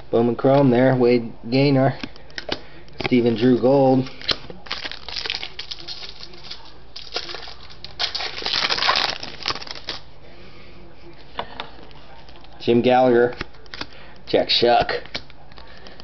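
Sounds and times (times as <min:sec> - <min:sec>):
wrapper crinkling: 0:04.0 - 0:10.1.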